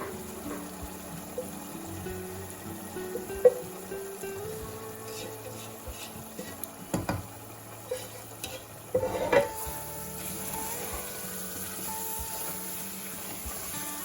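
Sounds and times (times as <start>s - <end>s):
food frying in a pan: 0.0s - 14.0s
soft background music: 0.0s - 14.0s
utensil knocking against pan: 5.9s - 7.3s.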